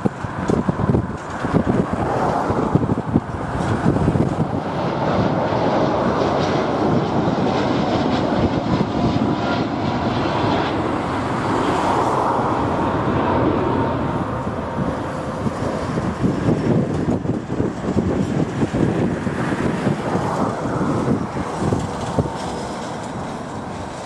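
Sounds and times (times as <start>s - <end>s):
jet engines at takeoff power: 0.0s - 24.0s
wind buffeting microphone: 0.0s - 24.0s.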